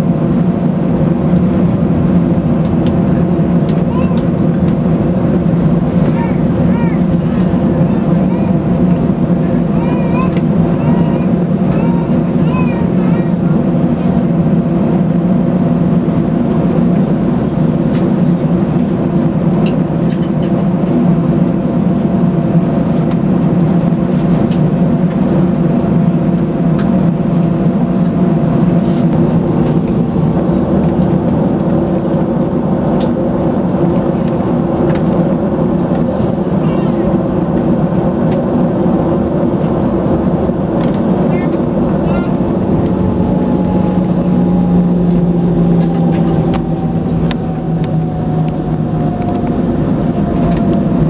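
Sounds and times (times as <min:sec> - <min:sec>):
airliner cabin engine drone: 0:00.0 - 0:51.0
faint higher hum: 0:25.8 - 0:51.0.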